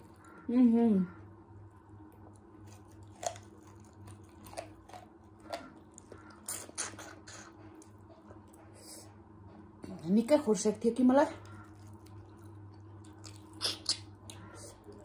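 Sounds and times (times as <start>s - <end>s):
person chewing food: 1.6s - 8.9s, 11.4s - 15.0s
wet mouth smacks and clicks: 13.1s - 14.5s.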